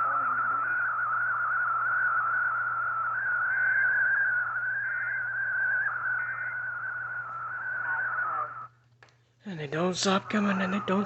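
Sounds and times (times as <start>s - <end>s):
wavering whistle-like warning tone: 0.0s - 8.7s
radio hiss: 0.0s - 8.8s, 9.4s - 11.0s
low hum: 0.0s - 11.0s.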